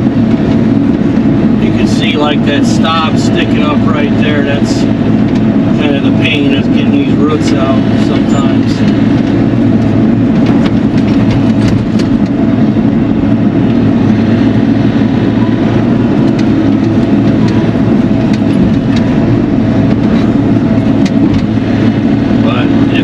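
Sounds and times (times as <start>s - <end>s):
engine humming: 0.0s - 23.0s.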